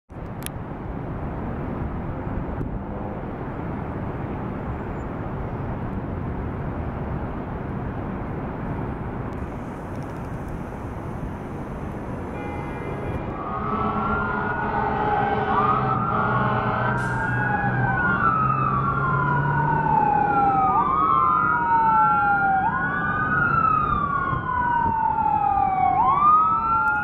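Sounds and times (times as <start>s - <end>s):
city traffic rumble: 0.1s - 27.0s
faint siren: 9.4s - 27.0s.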